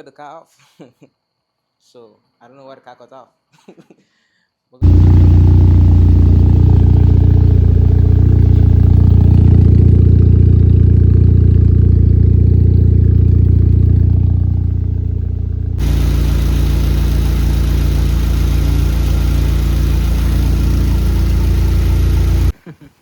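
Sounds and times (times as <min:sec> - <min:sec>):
car engine idling loudly: 0:04.8 - 0:22.5.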